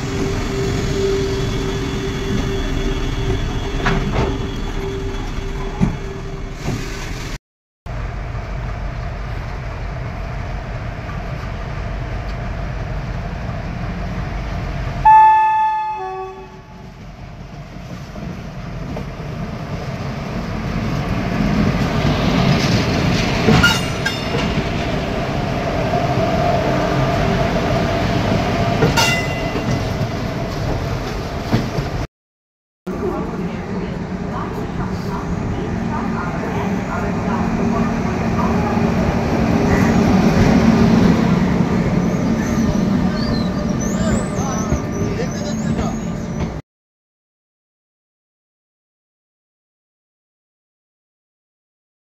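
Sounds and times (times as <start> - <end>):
locomotive horn blast: 15.0 - 16.9
train wheels rumbling on rails: 17.0 - 32.1, 32.9 - 46.6.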